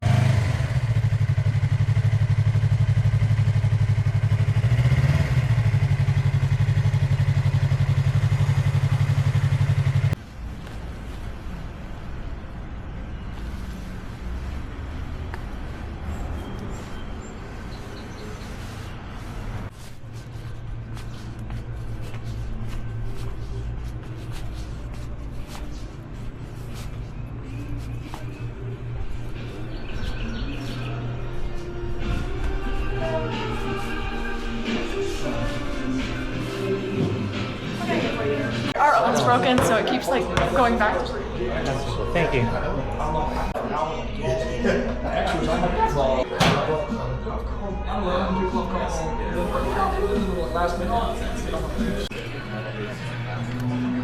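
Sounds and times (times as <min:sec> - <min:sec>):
motorcycle engine idling: 0:00.0 - 0:10.2
motorcycle engine humming: 0:00.0 - 0:41.6, 0:48.8 - 0:54.0.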